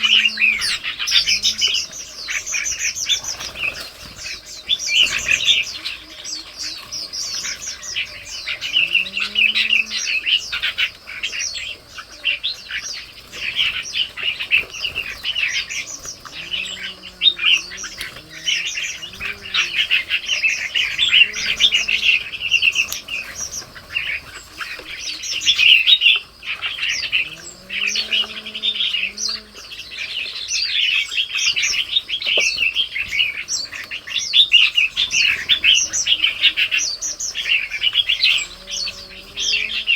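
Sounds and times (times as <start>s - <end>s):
birds chirping: 0.0s - 39.9s
soft low bird calls: 0.0s - 39.9s.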